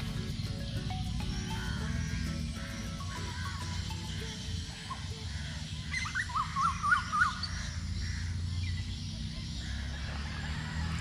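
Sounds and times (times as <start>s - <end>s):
bird chirping: 0.0s - 10.7s
low steady rumble: 0.0s - 11.0s.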